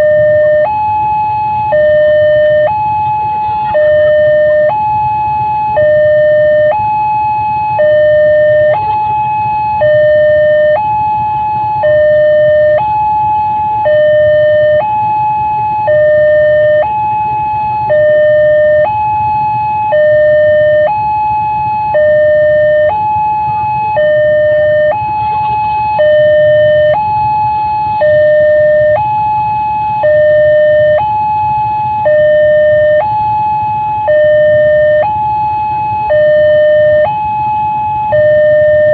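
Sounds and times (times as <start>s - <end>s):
two-tone level crossing alarm: 0.0s - 38.9s.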